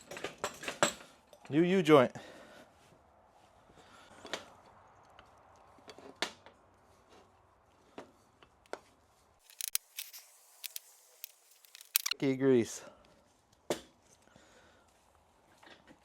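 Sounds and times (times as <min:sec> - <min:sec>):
hand tools clicking and tapping: 0:09.5 - 0:09.9, 0:10.6 - 0:12.2.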